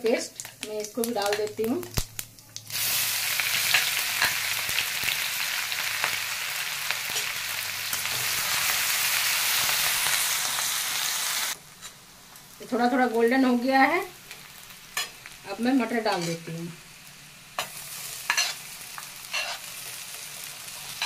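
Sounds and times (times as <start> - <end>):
paste sizzling in hot oil: 0.4 - 21.0
metal spatula scraping: 16.1 - 16.5, 17.6 - 18.6, 19.3 - 19.7.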